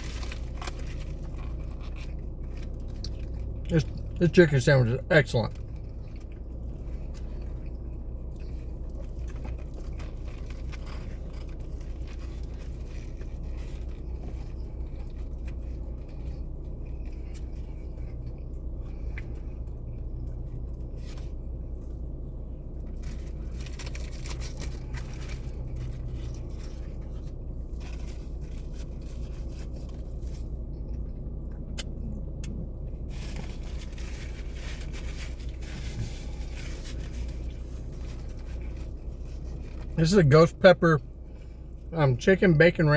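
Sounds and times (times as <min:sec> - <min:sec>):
car engine idling hum: 0:00.0 - 0:42.9.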